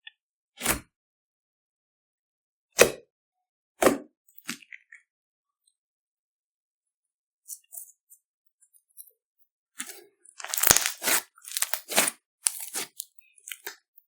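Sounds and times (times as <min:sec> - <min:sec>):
sticky slime squishing and stretching: 0:10.4 - 0:13.7.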